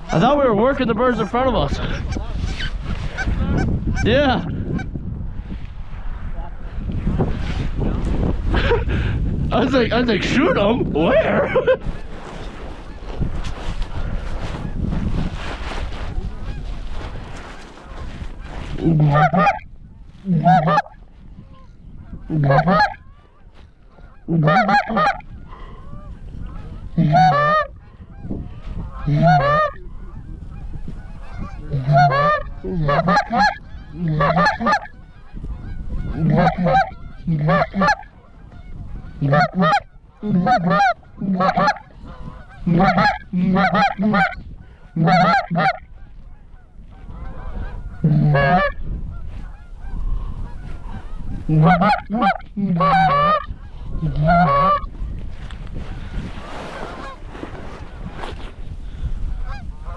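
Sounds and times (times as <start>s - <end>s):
low wind rumble: 0.0s - 59.9s
goose call honks and clucks: 1.1s - 4.9s, 17.9s - 23.2s, 23.9s - 56.2s, 59.4s - 59.9s.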